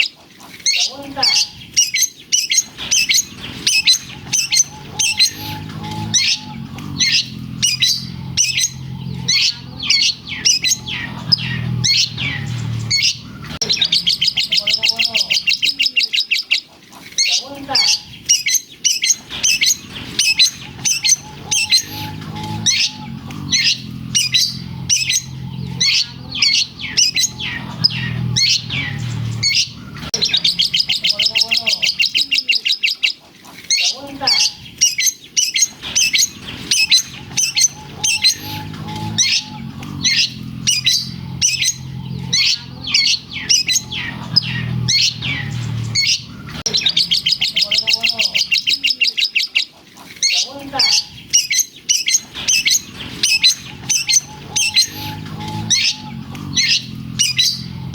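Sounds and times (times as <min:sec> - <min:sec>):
bird singing rapid sharp chirps: 0:00.0 - 0:57.9
fast rattling bird trill: 0:00.6 - 0:57.9
low hum: 0:02.6 - 0:14.8, 0:19.2 - 0:31.1, 0:35.7 - 0:47.6, 0:52.2 - 0:57.9.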